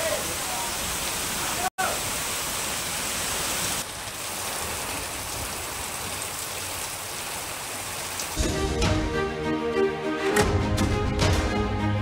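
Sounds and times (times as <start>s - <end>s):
heavy rain pouring: 0.0s - 9.0s
music: 8.4s - 12.0s.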